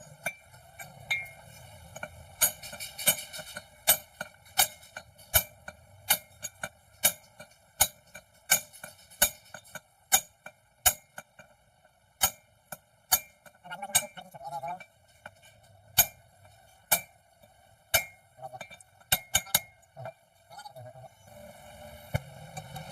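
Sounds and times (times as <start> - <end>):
hammer striking metal: 2.0 - 11.5, 12.2 - 14.2, 16.0 - 16.2, 16.9 - 17.1, 18.0 - 18.2, 19.1 - 19.8.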